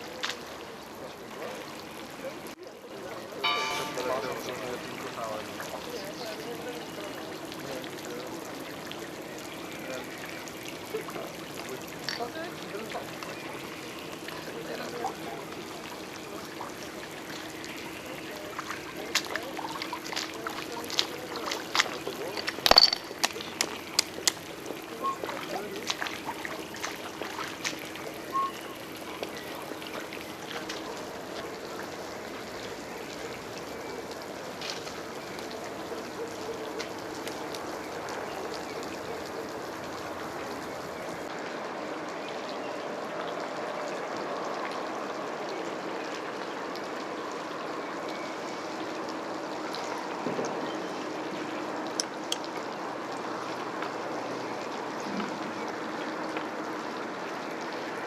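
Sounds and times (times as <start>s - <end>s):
running water hiss: 0.0s - 41.3s.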